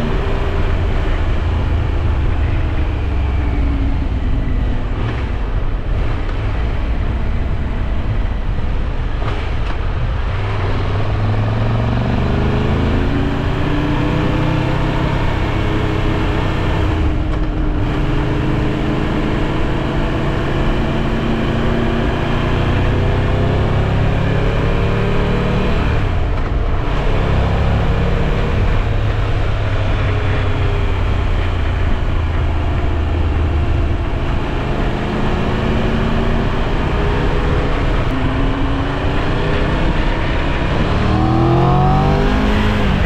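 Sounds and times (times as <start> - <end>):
motorcycle engine running: 28.4 - 43.0.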